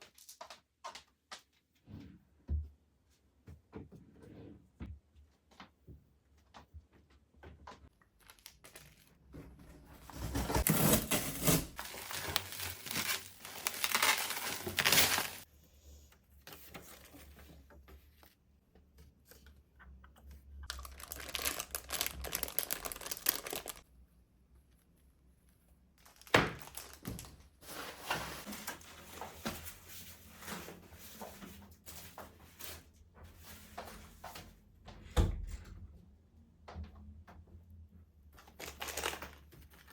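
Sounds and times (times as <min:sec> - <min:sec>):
packaging crinkling and tearing: 0:08.2 - 0:09.1, 0:11.8 - 0:15.4, 0:20.7 - 0:23.8, 0:26.0 - 0:27.3, 0:38.4 - 0:39.9.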